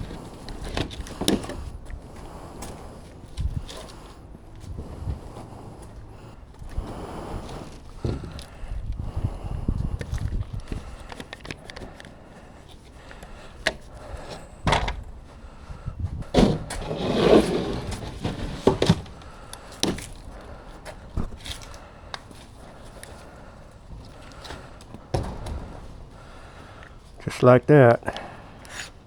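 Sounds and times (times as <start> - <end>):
lumber scraping rustle: 0.0 - 8.8, 15.3 - 28.0.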